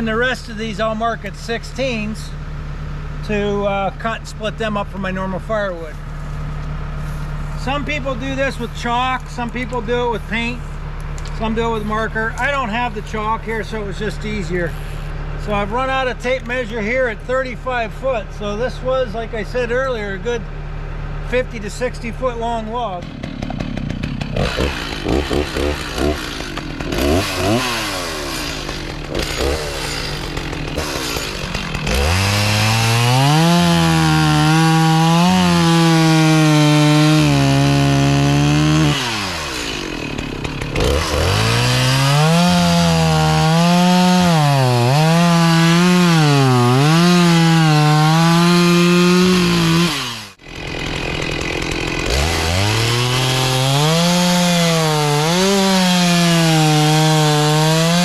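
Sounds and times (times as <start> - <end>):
chainsaw cutting log: 22.4 - 58.0.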